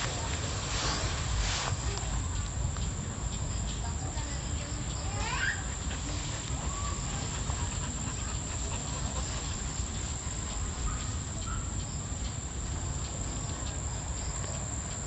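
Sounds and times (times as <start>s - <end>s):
steady low rumble: 0.0s - 15.0s
faint bird chirps: 10.5s - 12.4s.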